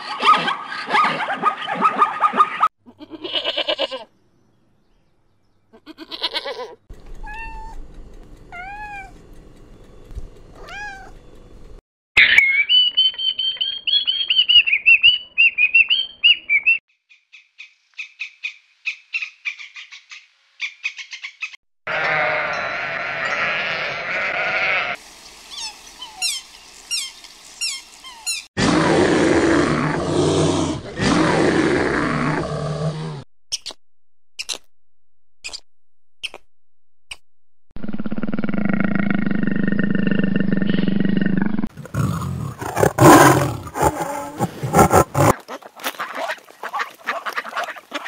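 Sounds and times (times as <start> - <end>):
goat bleating: 2.8 - 4.1, 5.7 - 7.5, 21.9 - 25.0.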